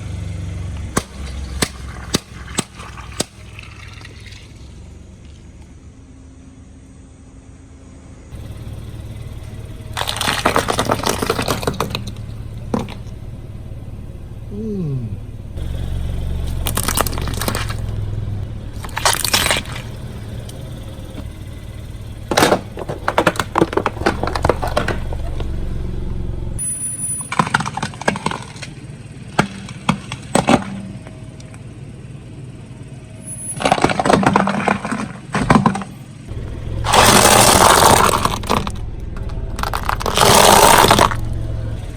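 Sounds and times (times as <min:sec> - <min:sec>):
car engine rumble: 0:00.0 - 0:41.9
tyre crushing objects: 0:00.9 - 0:03.7, 0:10.0 - 0:13.1, 0:16.4 - 0:18.0, 0:18.8 - 0:20.1, 0:22.3 - 0:25.6, 0:36.9 - 0:38.8, 0:39.6 - 0:41.3.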